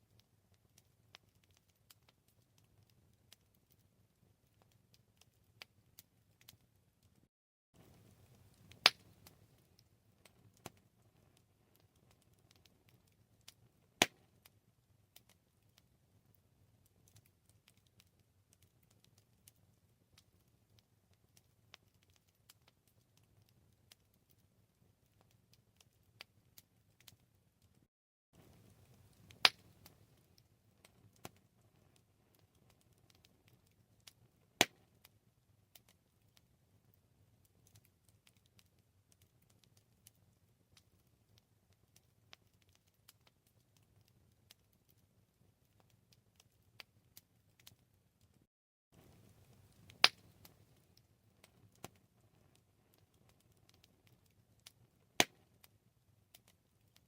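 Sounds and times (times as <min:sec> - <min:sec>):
campfire crackling and popping: 0:00.0 - 0:57.0
loud sharp crack of fire: 0:07.8 - 0:09.4
low rumble of flames: 0:07.8 - 0:15.0, 0:28.4 - 0:34.6, 0:49.0 - 0:55.3.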